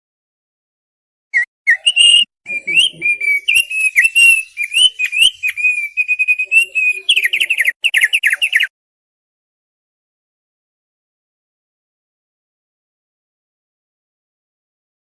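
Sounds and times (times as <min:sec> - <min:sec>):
bird singing whistled notes: 0:01.4 - 0:08.7.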